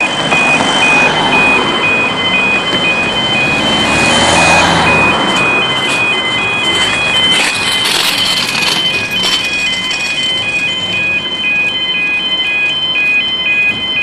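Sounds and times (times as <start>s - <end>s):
road traffic noise: 0.2s - 11.1s.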